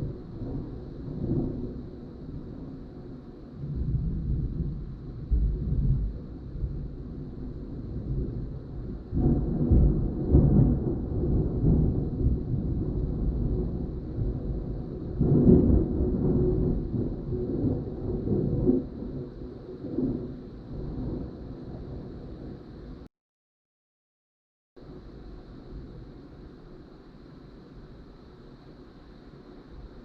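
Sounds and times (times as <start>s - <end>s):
thunder rumbling: 0.0s - 23.0s.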